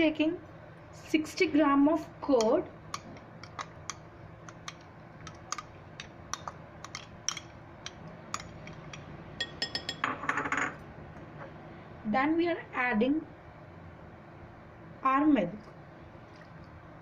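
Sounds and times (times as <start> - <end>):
spoon tapping a bowl: 2.4 - 10.6.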